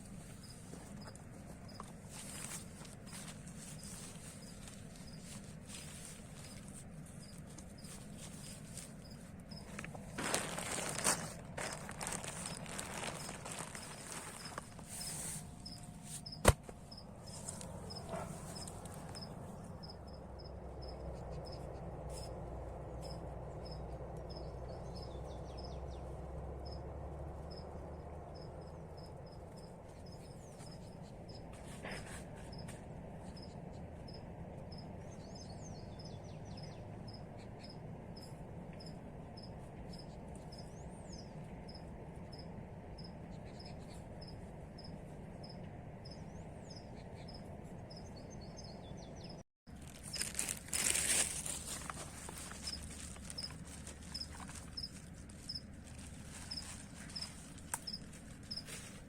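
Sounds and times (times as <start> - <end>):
insect chirping: 51.8 - 55.7.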